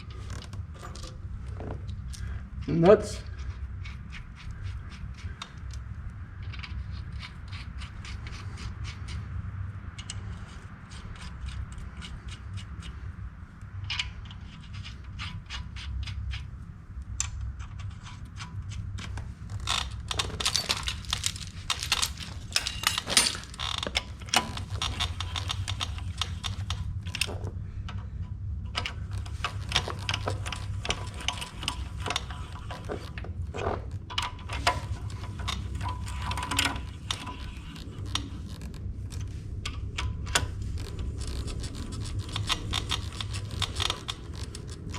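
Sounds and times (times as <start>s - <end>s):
wrench clicking on nuts: 17.2s - 28.0s, 40.2s - 44.9s.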